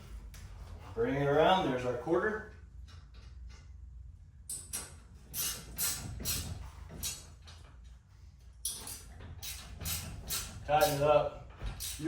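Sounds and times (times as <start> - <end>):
wrench rasping on metal: 5.3 - 7.4, 8.7 - 12.0.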